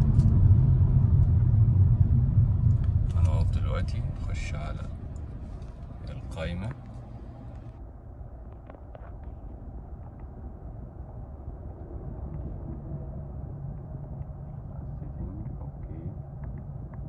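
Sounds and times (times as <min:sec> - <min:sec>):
cabin hum: 0:00.0 - 0:07.8
engine and road noise rumble: 0:00.0 - 0:17.0.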